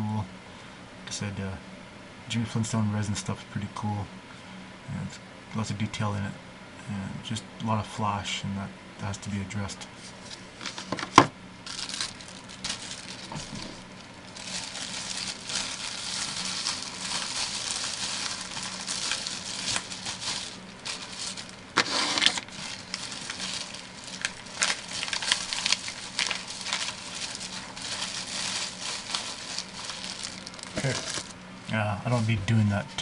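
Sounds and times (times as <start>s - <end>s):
faint steady hum: 0.0s - 33.0s
plastic wrapper crinkling: 10.6s - 31.4s.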